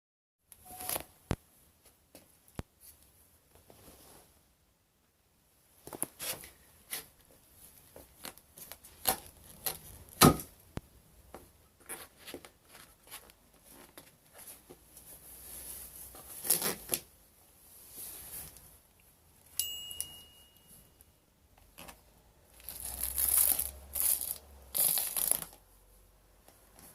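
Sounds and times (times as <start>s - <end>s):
short high squeak: 0.6s - 1.0s
sneaker being crushed and trampled: 10.2s - 10.5s.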